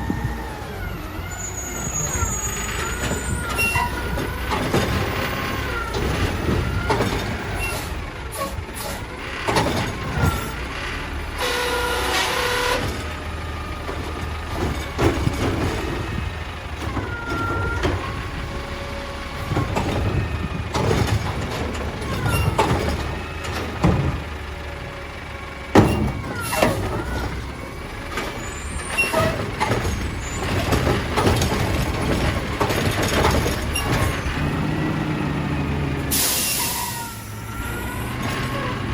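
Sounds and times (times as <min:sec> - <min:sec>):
garbage truck diesel engine running: 0:00.0 - 0:38.9
metal clanks: 0:02.5 - 0:10.6, 0:11.4 - 0:38.9
air brake hisses: 0:36.1 - 0:37.2.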